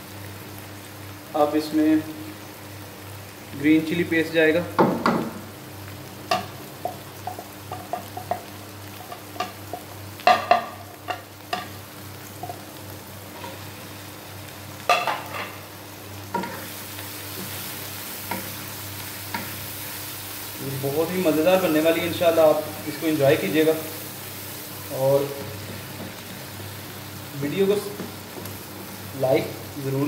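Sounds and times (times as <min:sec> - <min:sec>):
food sizzling in oil: 0:00.0 - 0:30.0.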